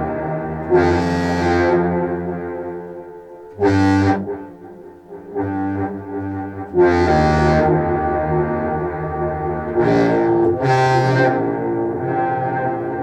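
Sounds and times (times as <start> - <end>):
low reedy clarinet notes with delay: 3.6 - 13.0.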